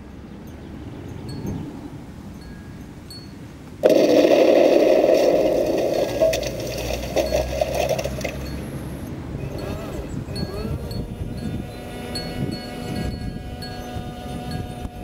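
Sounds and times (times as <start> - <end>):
electric motors and gearbox whirring: 3.8 - 15.0.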